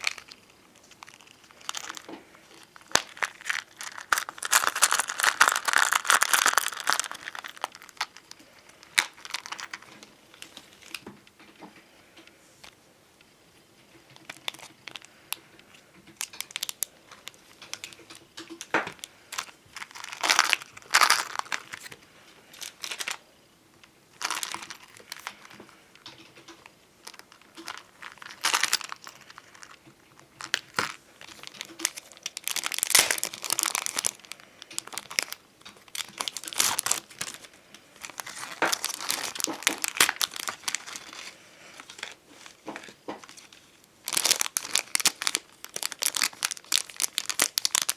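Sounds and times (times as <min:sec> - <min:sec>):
stickers peeling: 0:00.0 - 0:09.7
plastic sticker sheets crinkling: 0:00.0 - 0:11.1, 0:14.2 - 0:15.4, 0:16.1 - 0:23.2, 0:24.2 - 0:47.9.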